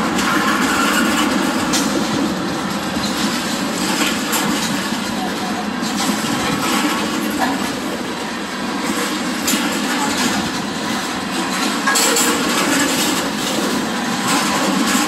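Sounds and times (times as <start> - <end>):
steel wheels rumbling on rail: 0.0 - 15.0
train cars clanking: 0.0 - 15.0.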